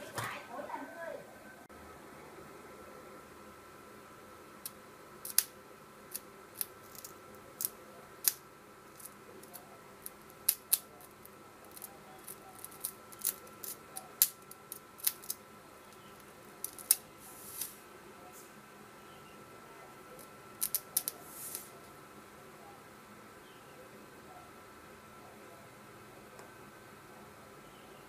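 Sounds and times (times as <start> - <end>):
wire sparking on battery terminal: 4.6 - 17.8
short hiss: 17.2 - 17.8, 21.2 - 21.8.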